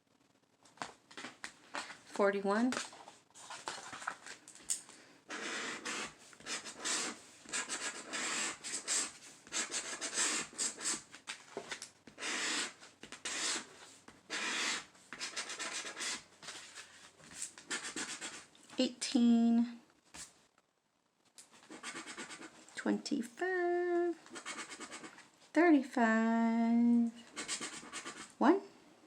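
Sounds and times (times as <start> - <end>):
scratching lottery ticket: 5.3 - 18.5, 21.5 - 22.6, 24.2 - 25.2, 27.2 - 28.4.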